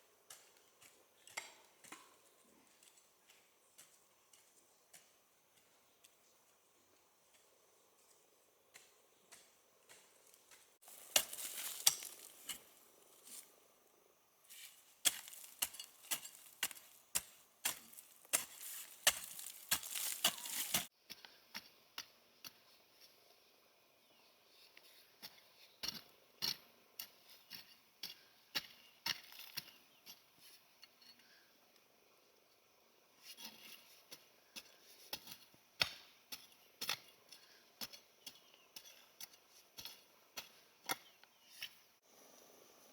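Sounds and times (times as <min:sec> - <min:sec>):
hand tools chopping wood: 0:08.8 - 0:12.7, 0:14.6 - 0:20.9.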